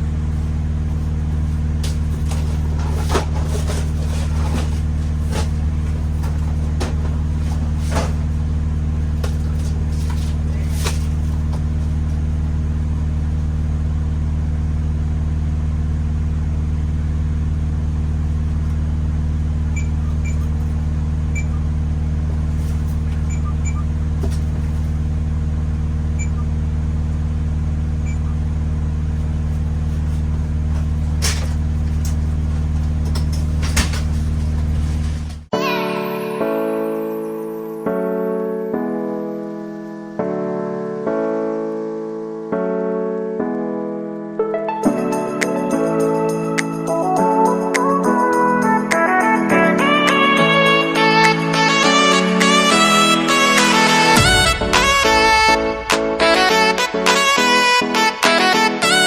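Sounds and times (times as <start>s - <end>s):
cases being handled: 0.0s - 12.5s, 22.3s - 25.1s, 29.2s - 35.5s
diesel engine droning: 0.0s - 35.5s, 47.1s - 58.0s.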